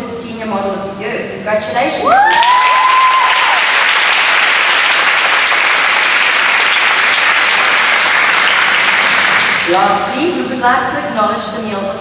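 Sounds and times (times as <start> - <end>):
person whooping: 2.1 - 3.7
crowd applauding: 2.1 - 9.8.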